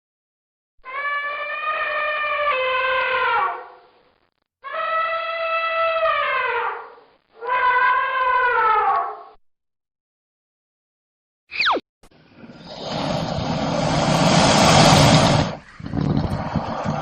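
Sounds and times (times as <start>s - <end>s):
elephant trumpeting: 0.8s - 3.8s, 4.6s - 9.2s.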